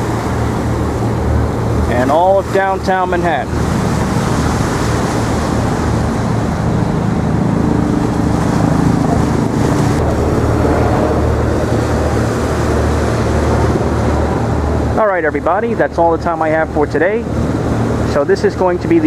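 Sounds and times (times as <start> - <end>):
low engine rumble: 0.0 - 19.0
wind buffeting microphone: 0.0 - 19.0.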